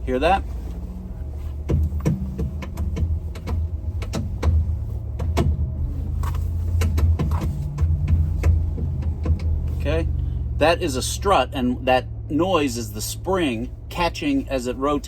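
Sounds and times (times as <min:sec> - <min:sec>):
steady low hum: 0:00.0 - 0:15.0
strut clicking and knocking: 0:01.6 - 0:09.7.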